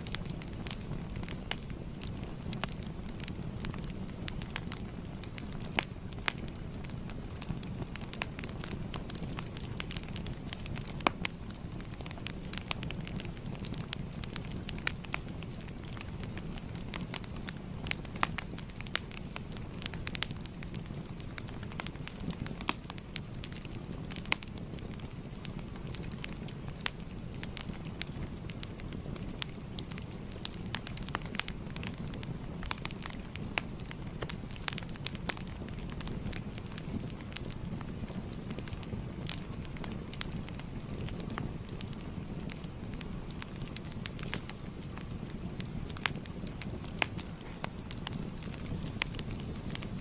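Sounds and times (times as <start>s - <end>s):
fire crackling: 0.0s - 50.0s.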